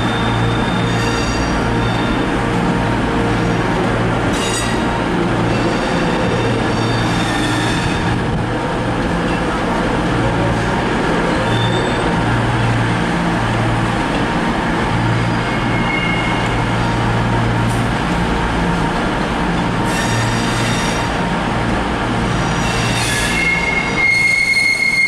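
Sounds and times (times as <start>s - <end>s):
wheels squealing on rails: 0.0s - 2.4s, 4.3s - 8.2s, 11.2s - 12.3s, 15.0s - 16.7s, 19.8s - 21.2s, 22.3s - 25.0s
train rumbling: 0.0s - 25.0s.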